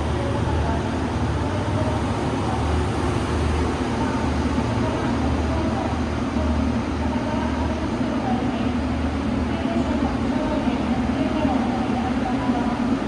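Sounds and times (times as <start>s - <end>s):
train rumbling and humming: 0.0s - 8.3s.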